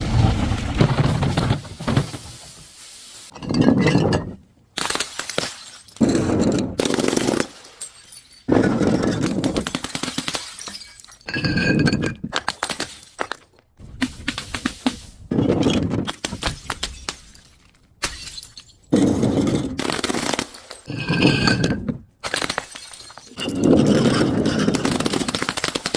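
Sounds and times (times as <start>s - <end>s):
glass being crushed: 7.0s - 13.4s, 16.2s - 18.9s, 22.2s - 25.9s.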